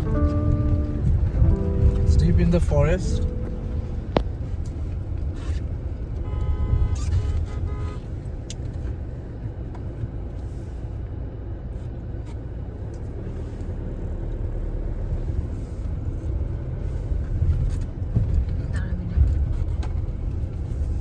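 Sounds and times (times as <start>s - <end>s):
short pitched tone: 0.0s - 4.6s
road and engine rumble in car: 0.0s - 21.0s.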